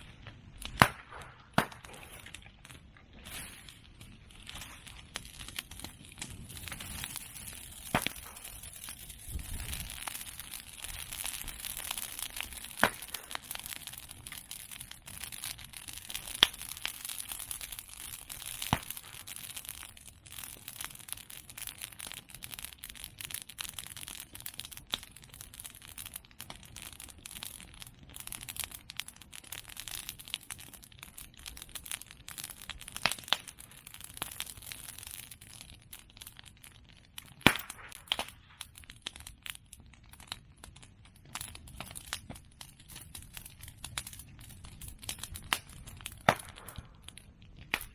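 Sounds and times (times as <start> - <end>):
bonfire crackling: 0.0 - 47.9
bamboo stems popping: 7.7 - 10.2, 12.2 - 13.5, 45.5 - 47.9.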